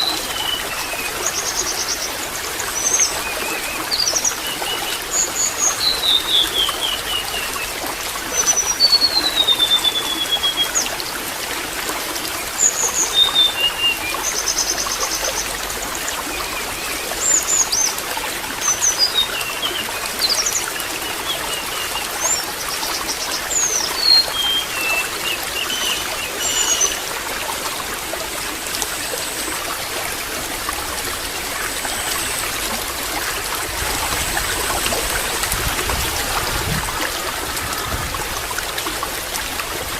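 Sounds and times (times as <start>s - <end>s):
water trickling: 0.0s - 39.9s
birds whistling and chirping: 23.5s - 27.0s.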